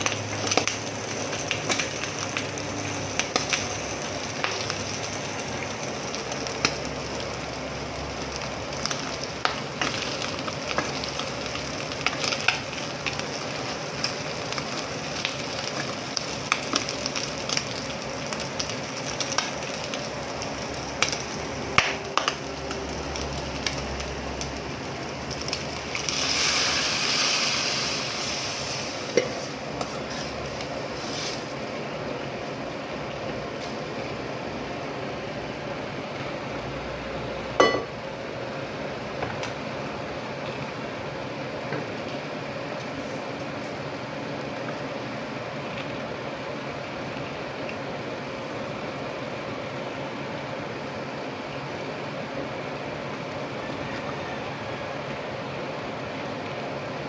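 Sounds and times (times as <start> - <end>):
meat sizzling in a pot: 0.0 - 31.8
liquid poured into hot pot hissing: 18.7 - 31.8.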